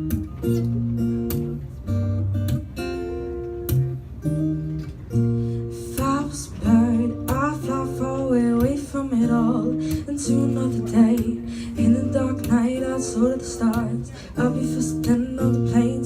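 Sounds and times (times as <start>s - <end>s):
acoustic guitar strumming: 0.0s - 16.0s
woman singing: 5.7s - 16.0s.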